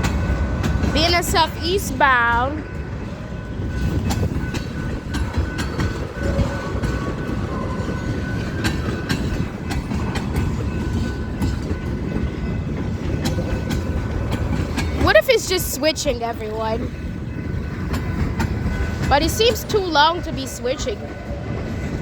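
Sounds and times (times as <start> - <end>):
freight train rumbling: 0.0 - 22.0
wheels clanking over rail joints: 0.0 - 22.0.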